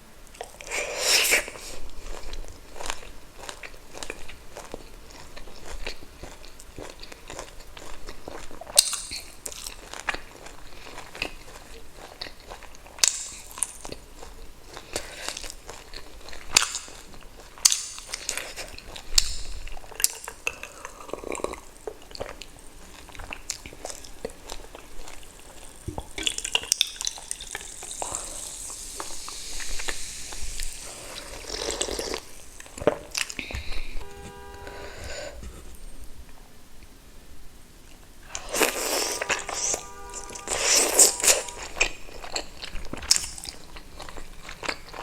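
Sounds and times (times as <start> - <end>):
person chewing wetly: 0.3 - 34.2, 38.3 - 45.0
hissy wet noise: 21.6 - 35.5.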